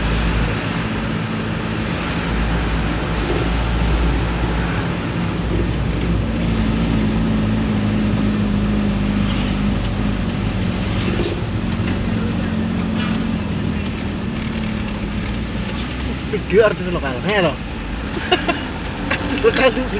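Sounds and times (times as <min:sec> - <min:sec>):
diesel truck engine running: 0:00.0 - 0:19.9.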